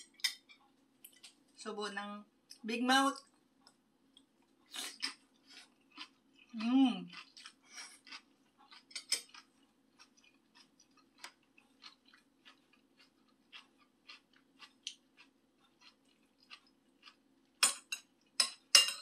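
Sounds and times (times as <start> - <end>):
soft wet chewing clicks: 3.2 - 17.6.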